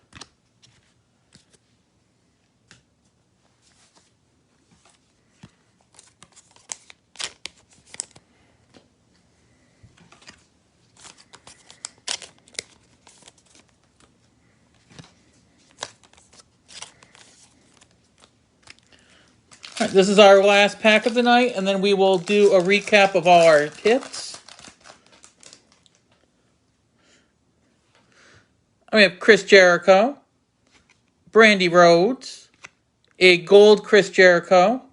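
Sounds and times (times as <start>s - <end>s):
cards clicking and rustling: 0.0s - 1.6s, 4.7s - 8.9s, 10.0s - 14.2s, 14.8s - 26.2s, 32.5s - 32.8s
wrapper crinkling and tearing: 5.9s - 8.2s, 10.1s - 14.2s, 14.9s - 26.2s.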